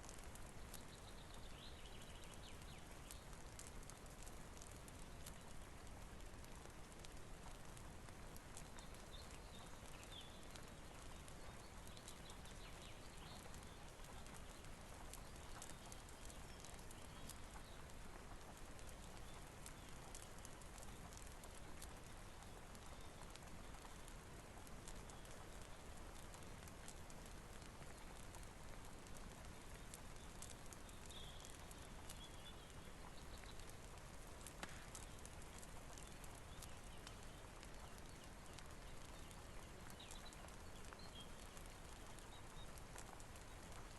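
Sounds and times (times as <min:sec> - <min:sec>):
rain hiss: 0:00.0 - 0:43.9
wood fire crackling: 0:00.0 - 0:43.9.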